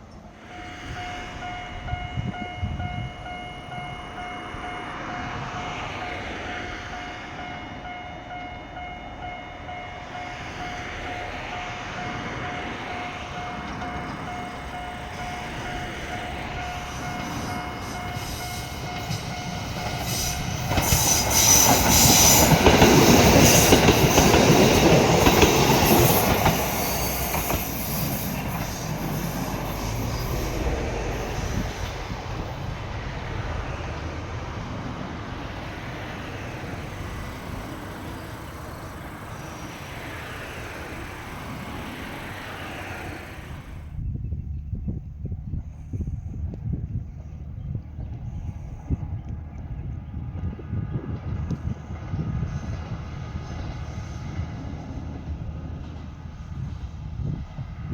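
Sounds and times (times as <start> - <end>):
railcar whine: 0.0 - 57.9
wheel and rail noise: 0.0 - 57.9.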